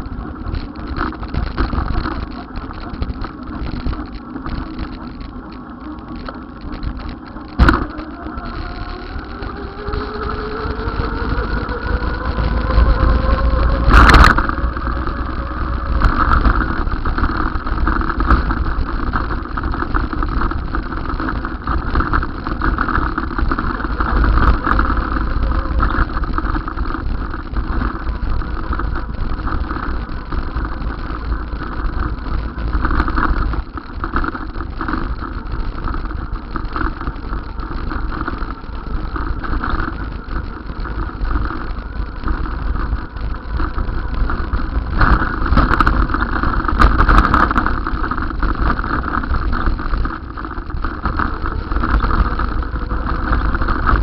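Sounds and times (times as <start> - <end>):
low wind rumble: 0.0 - 54.0
road vehicle noise: 0.0 - 54.0
rising pitch tone: 7.6 - 16.5.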